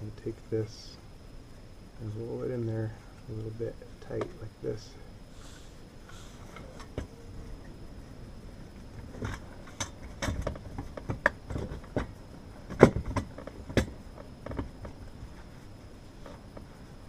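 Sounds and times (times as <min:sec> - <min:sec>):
clicks and knocks of handling: 0:09.0 - 0:15.4.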